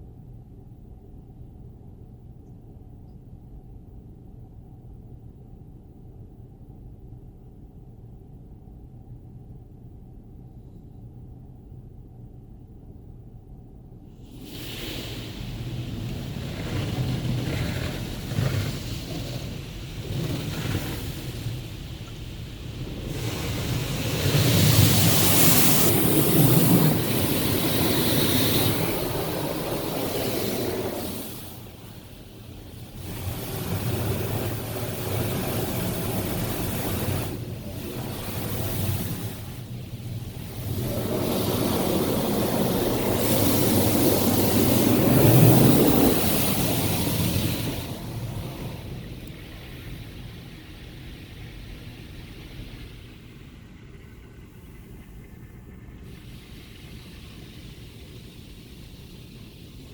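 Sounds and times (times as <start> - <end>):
water jets spraying car: 14.3 - 53.5, 56.0 - 59.9.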